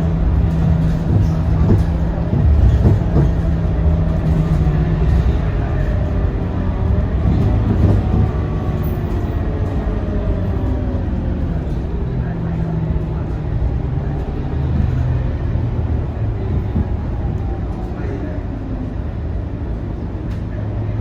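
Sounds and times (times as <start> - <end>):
knocks and rattles: 0.0 - 9.8
diesel bus engine drone: 0.0 - 21.0
road noise: 0.0 - 21.0.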